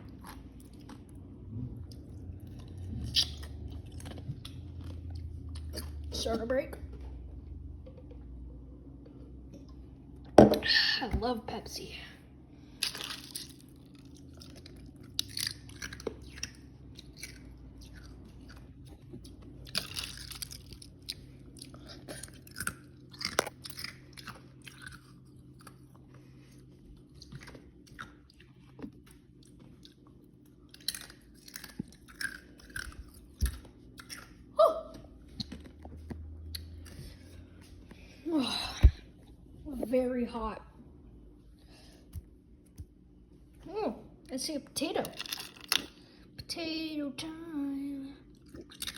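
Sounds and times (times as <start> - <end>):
person chewing food: 0.0 - 6.1, 12.6 - 38.2, 48.3 - 48.9.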